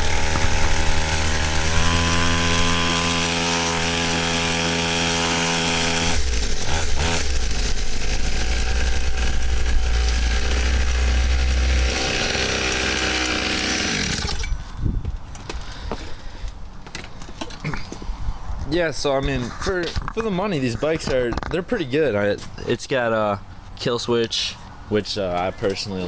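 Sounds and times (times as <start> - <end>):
pit bike engine buzzing: 0.0 - 14.8.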